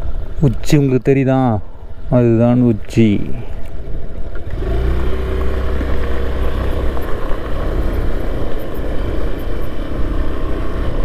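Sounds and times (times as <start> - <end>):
motorcycle engine rumbling: 3.8 - 11.0.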